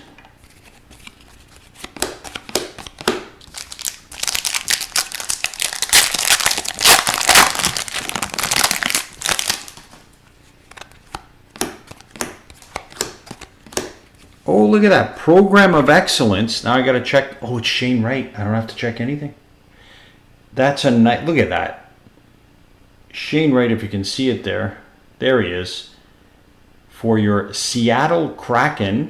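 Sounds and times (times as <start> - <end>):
foil wrapper crinkling: 0.5 - 11.1
foil wrapper tearing: 0.9 - 10.0.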